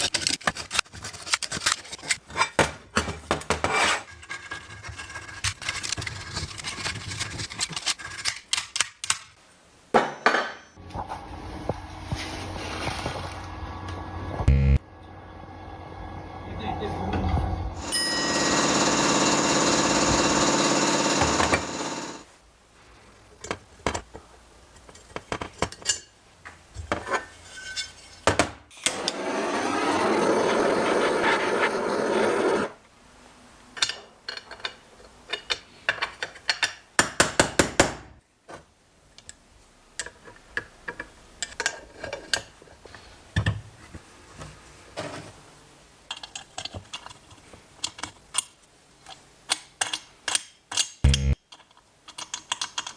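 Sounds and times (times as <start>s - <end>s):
power tool running: 17.8s - 22.2s.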